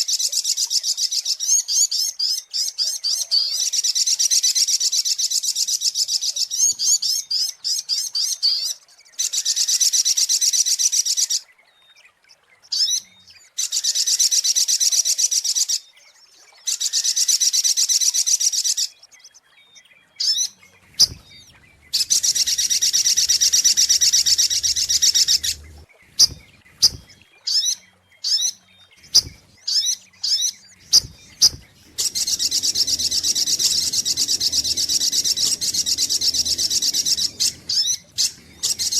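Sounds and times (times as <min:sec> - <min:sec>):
bird trilling: 0:20.2 - 0:38.9.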